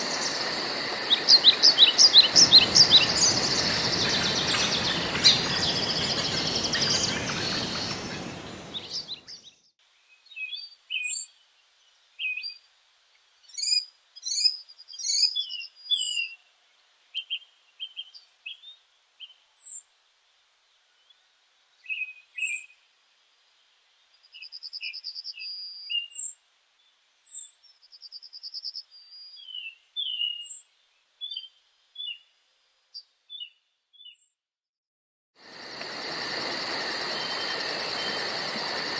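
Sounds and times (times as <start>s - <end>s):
songbirds chirping and singing: 1.0s - 11.3s, 28.5s - 30.6s.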